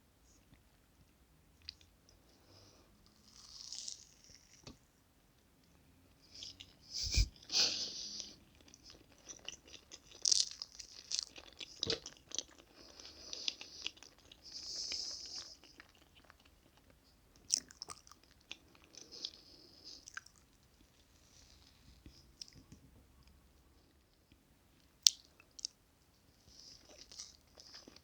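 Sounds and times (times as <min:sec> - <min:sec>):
chewing and wet mouth sounds: 0:08.5 - 0:21.0, 0:26.6 - 0:28.0.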